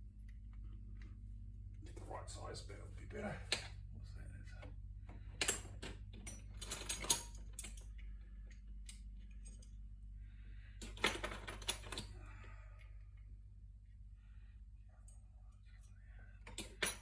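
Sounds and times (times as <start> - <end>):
metal tools clinking: 5.4 - 8.0.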